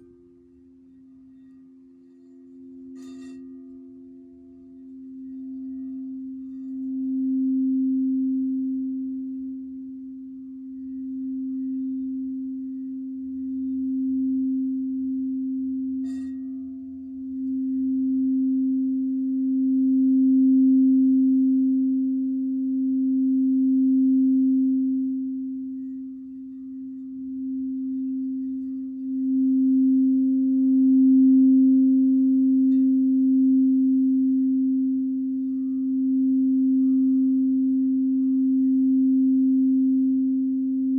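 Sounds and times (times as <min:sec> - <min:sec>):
singing bowl low tone: 0:00.0 - 0:40.9.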